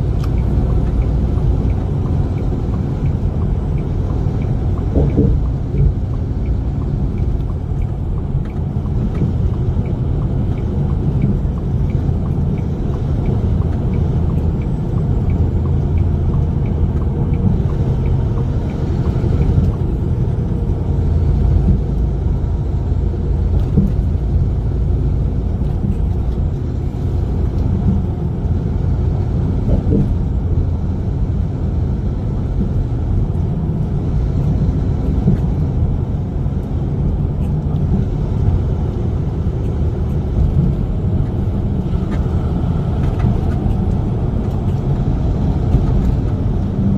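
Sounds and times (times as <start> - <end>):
truck driving rumble: 0.0 - 46.9
faint regular ticking: 0.1 - 20.0.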